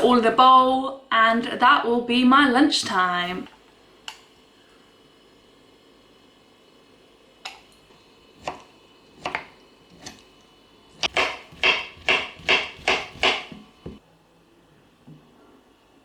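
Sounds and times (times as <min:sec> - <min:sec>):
knife chopping on board: 0:08.4 - 0:10.2, 0:11.0 - 0:14.0.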